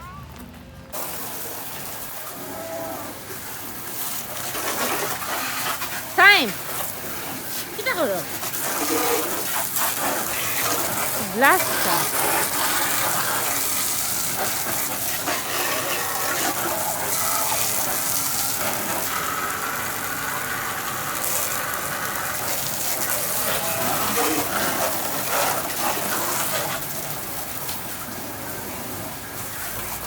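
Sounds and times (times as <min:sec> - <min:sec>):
water gushing: 0:00.9 - 0:30.0.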